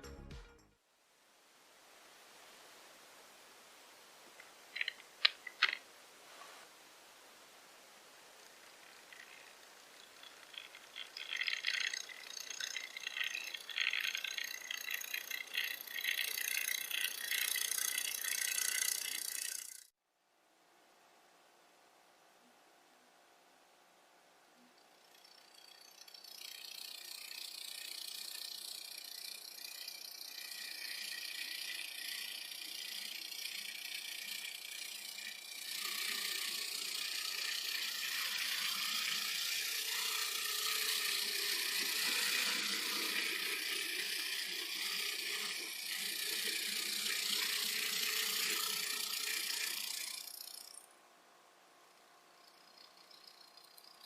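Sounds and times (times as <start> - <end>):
small geared electric motor whirring: 8.4 - 19.9, 24.9 - 51.0, 52.4 - 54.0.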